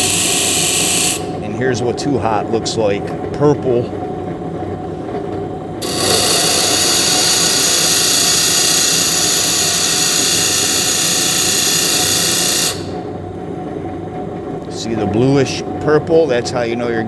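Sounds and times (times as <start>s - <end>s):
drill bit on grinding wheel: 0.0s - 1.4s, 5.8s - 13.0s.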